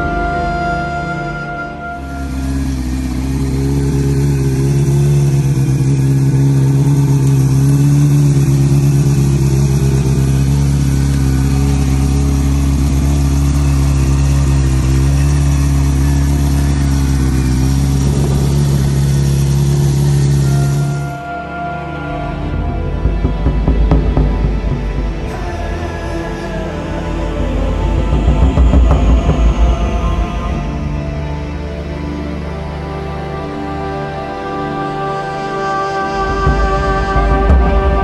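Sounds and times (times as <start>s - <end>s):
motorcycle engine idling: 0.0s - 21.5s, 22.4s - 33.6s.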